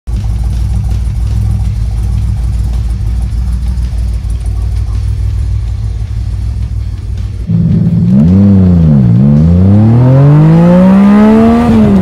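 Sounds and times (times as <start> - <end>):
car engine idling unevenly: 0.1 - 12.0.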